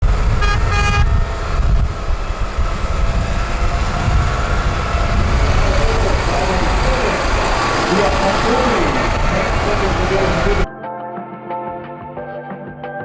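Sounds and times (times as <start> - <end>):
tractor engine rumbling: 0.0 - 10.7.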